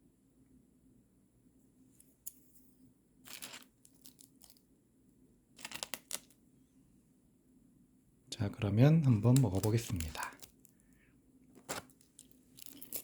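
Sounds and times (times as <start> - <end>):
food packaging crinkling and tearing: 3.3 - 4.6, 5.6 - 6.3, 9.1 - 10.8, 11.6 - 13.0.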